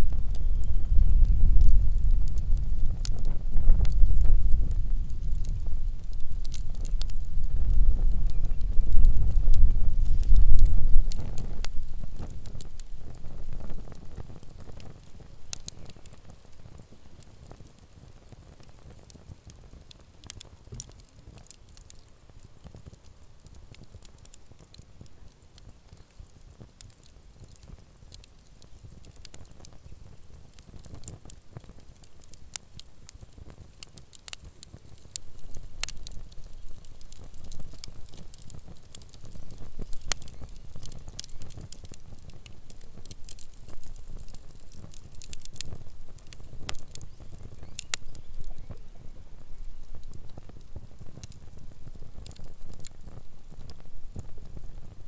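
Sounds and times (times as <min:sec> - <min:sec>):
low rumble: 0:00.0 - 0:12.9
campfire crackling and popping: 0:00.0 - 0:55.0.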